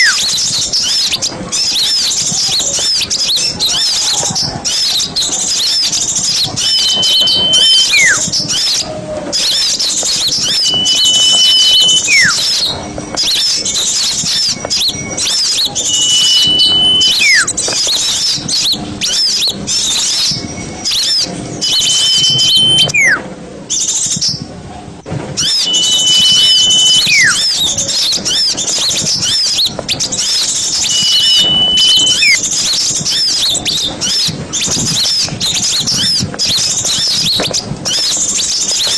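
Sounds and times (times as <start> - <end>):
small birds chattering: 0.0 - 24.5, 25.4 - 38.9
clear whistle dropping steeply: 6.5 - 8.3, 10.4 - 12.5, 15.6 - 17.6, 21.6 - 23.2, 25.4 - 27.6, 30.7 - 32.4.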